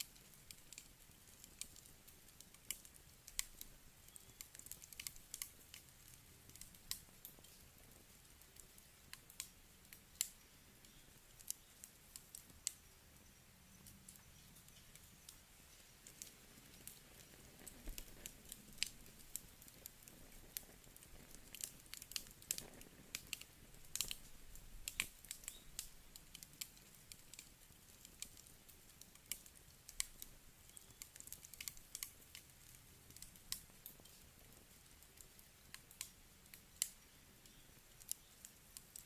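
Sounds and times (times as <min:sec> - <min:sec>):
campfire crackling: 0:00.0 - 0:39.0.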